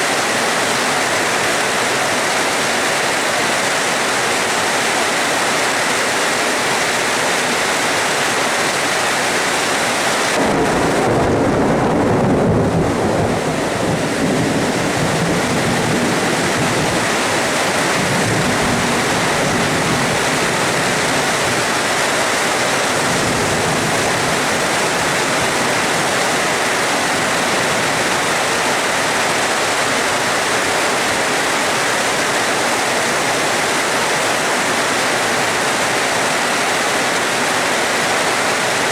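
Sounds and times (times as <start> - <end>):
steady rain hissing: 0.0 - 38.9
thunder rumbling: 10.3 - 21.9, 22.9 - 28.5.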